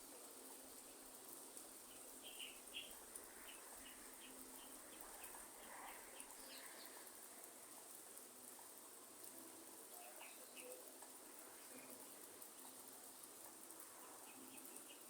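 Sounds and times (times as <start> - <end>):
light rain hiss: 0.0 - 15.0
bird chirping faintly: 1.9 - 7.1, 9.9 - 12.0.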